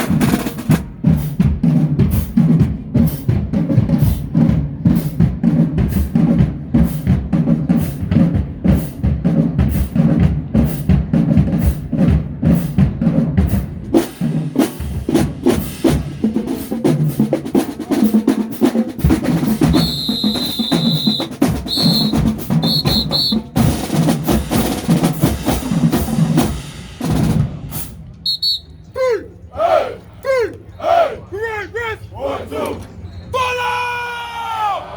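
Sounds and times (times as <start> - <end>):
drumline playing: 0.0 - 33.1
high whistle blasts: 19.7 - 23.5, 28.2 - 28.9.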